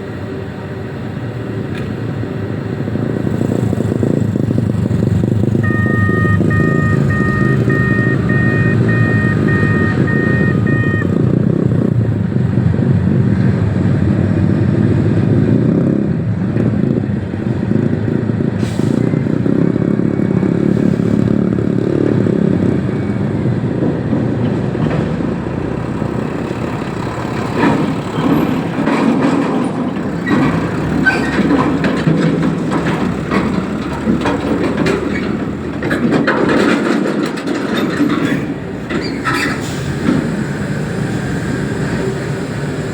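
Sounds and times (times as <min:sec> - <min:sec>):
heavy diesel engine running: 0:00.0 - 0:42.9
reversing alarm beeping: 0:05.6 - 0:11.4
metal knocks and clanks: 0:27.4 - 0:39.4.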